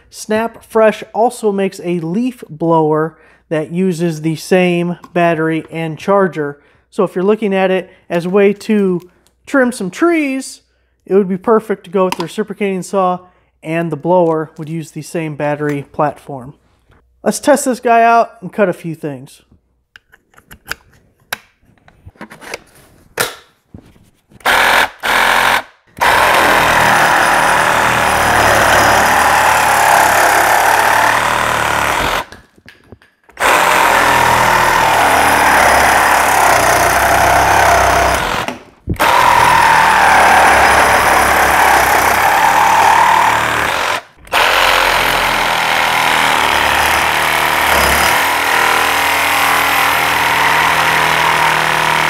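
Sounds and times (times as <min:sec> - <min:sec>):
reciprocating saw cutting: 0:24.4 - 0:32.3, 0:33.4 - 0:52.0.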